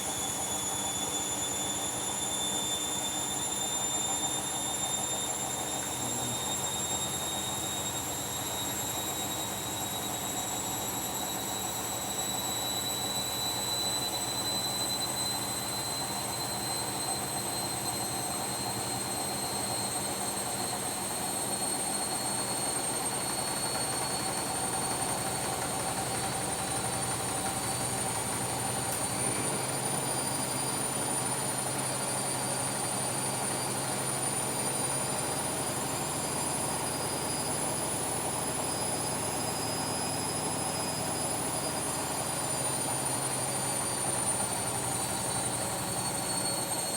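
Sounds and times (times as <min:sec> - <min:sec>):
washing machine motor whine: 0:00.0 - 0:46.9.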